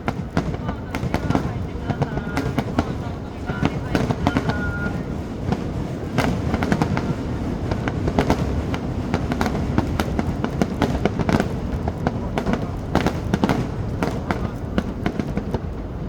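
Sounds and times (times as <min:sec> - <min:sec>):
deep rumble of booms: 0:00.0 - 0:16.0
fireworks cracks and bangs: 0:00.0 - 0:16.0.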